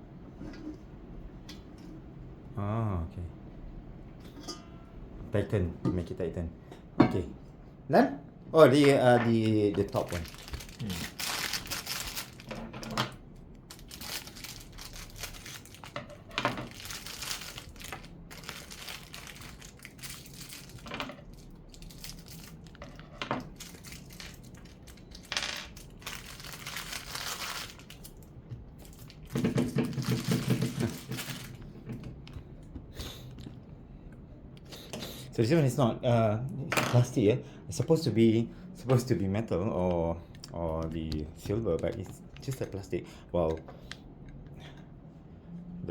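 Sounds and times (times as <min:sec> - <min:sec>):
plastic crinkling and rustling: 0:09.2 - 0:31.6.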